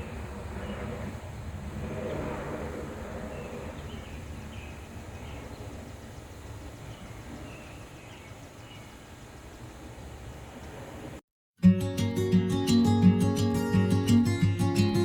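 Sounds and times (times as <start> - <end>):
helicopter passing: 0.0 - 8.0
small birds chirping: 3.3 - 11.0.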